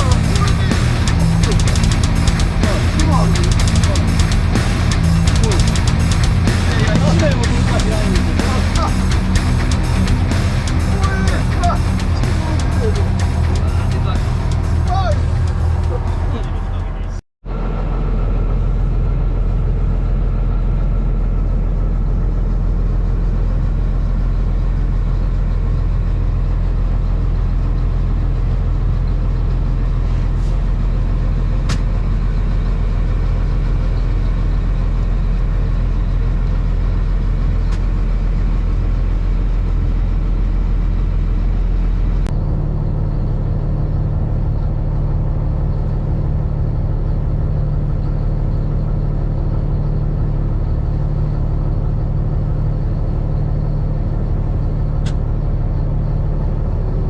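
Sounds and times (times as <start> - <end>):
boat engine humming: 0.0 - 17.2.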